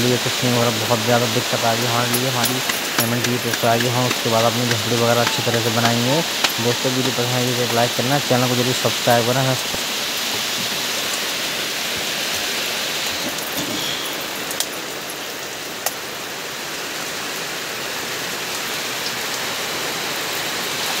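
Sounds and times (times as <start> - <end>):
heavy rain falling: 0.0 - 21.0
sharp ticks of drops: 1.6 - 8.8.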